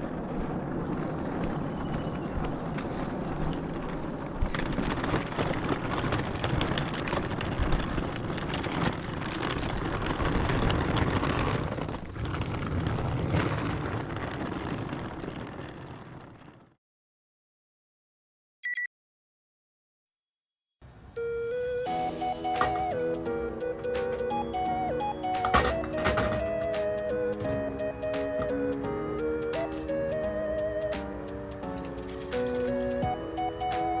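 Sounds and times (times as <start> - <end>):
campfire crackling and popping: 0.0 - 16.6, 26.6 - 34.0
low fire rumble: 0.0 - 16.8, 21.5 - 34.0.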